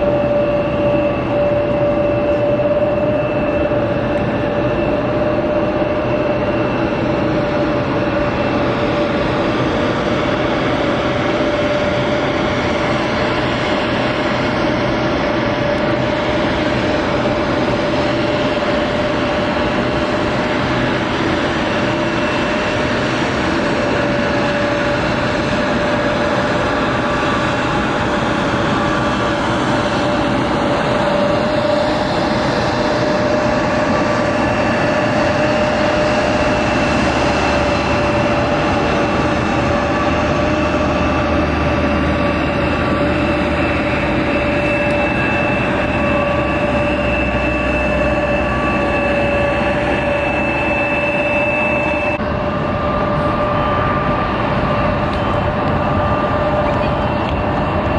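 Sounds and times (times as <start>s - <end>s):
jet engines roaring: 0.0s - 57.9s.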